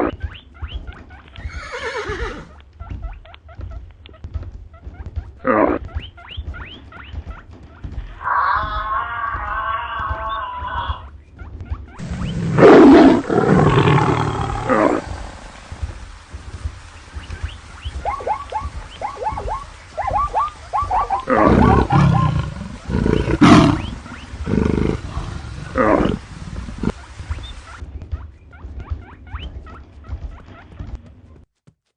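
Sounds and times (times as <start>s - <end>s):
steady low rumble: 11.9s - 28.0s
wild animals roaring: 12.0s - 15.6s, 21.2s - 27.0s.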